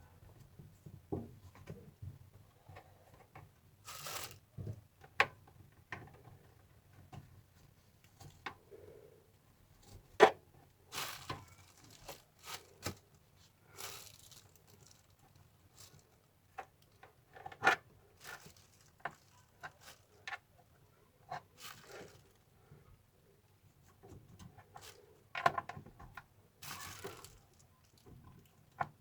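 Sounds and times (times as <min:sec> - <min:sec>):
rustling: 0:10.9 - 0:16.3, 0:18.1 - 0:20.2, 0:21.6 - 0:22.4, 0:26.6 - 0:28.1.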